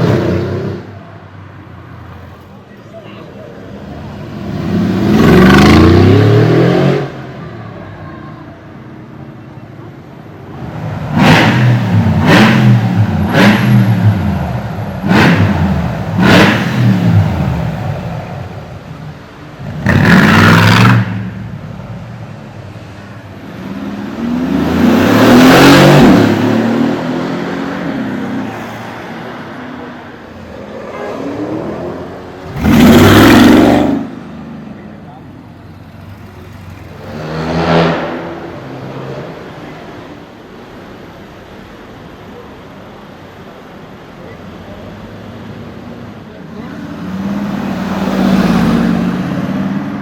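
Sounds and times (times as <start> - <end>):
car engine revving: 4.0 - 7.2, 10.6 - 18.6, 19.6 - 21.9, 23.3 - 29.6, 30.2 - 34.8, 36.0 - 39.7
car accelerating away: 4.0 - 7.3, 10.6 - 18.2, 19.6 - 21.4, 23.4 - 29.9, 30.5 - 34.8, 36.0 - 39.7.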